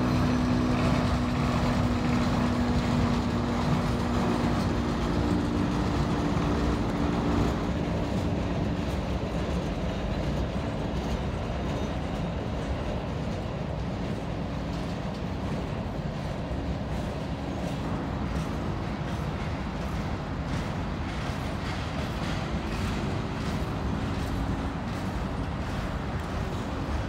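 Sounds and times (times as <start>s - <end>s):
freight train wheels rumbling: 0.0s - 27.0s
wheels clicking over rail joints: 0.0s - 27.0s.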